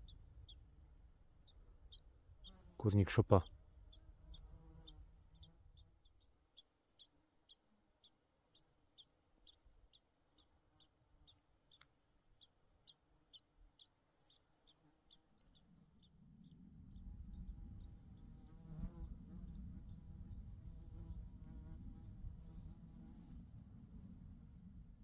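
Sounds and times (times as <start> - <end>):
flies buzzing: 4.2 - 6.1.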